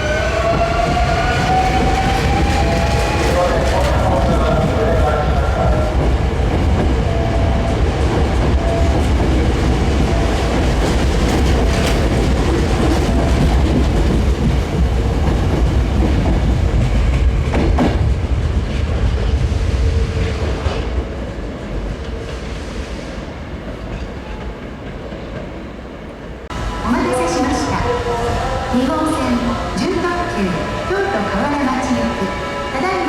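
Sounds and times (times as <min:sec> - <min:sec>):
electric train running: 0:26.5 - 0:33.0.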